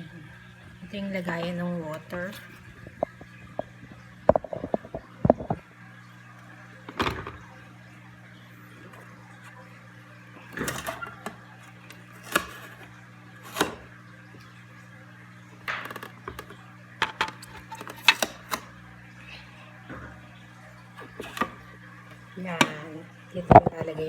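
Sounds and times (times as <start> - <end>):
steady low hum: 0.0 - 24.0
plastic parts clicking and knocking: 15.7 - 18.6.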